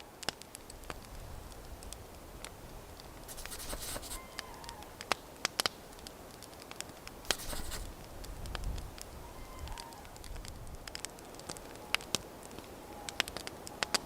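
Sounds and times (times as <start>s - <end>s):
campfire crackling: 0.0s - 14.0s
rustling bursts: 3.3s - 4.4s, 7.3s - 8.0s.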